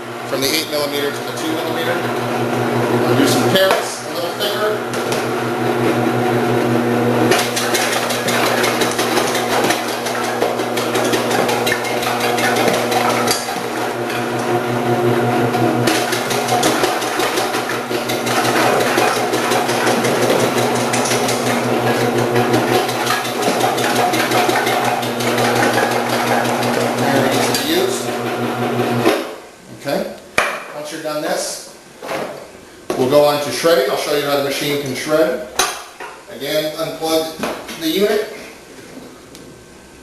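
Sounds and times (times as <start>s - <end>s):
motor humming: 1.2s - 29.0s
rapid clatter of chopping: 7.3s - 13.7s, 15.9s - 21.6s, 22.4s - 27.6s.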